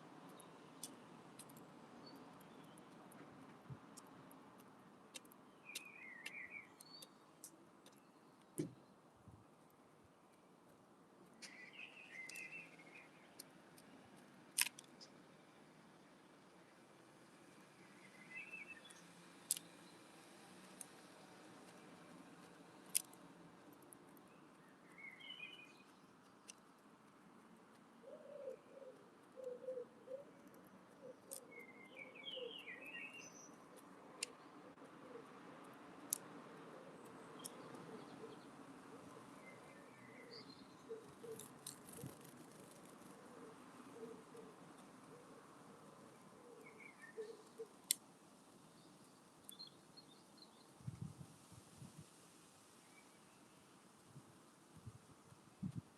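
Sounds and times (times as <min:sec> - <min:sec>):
small bird chirping: 0:05.1 - 0:08.8, 0:11.4 - 0:13.9, 0:24.2 - 0:26.7, 0:28.0 - 0:34.5, 0:37.0 - 0:48.0
sharp clicks: 0:14.5 - 0:15.2
wood pigeon cooing: 0:28.0 - 0:30.4, 0:43.2 - 0:45.4.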